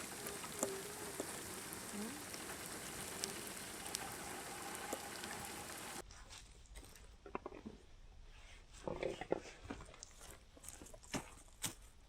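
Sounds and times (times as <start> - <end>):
raindrops tapping: 0.0 - 6.0
steady rain falling: 0.0 - 6.0.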